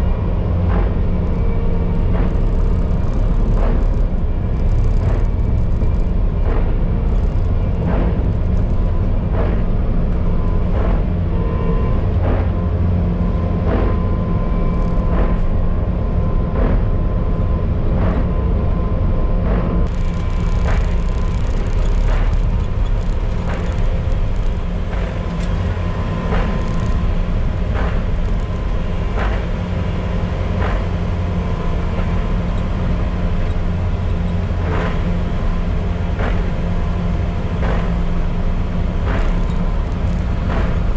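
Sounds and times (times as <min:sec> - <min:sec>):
loader engine drone with whine: 0:00.0 - 0:40.9
sharp ticking: 0:19.8 - 0:25.2.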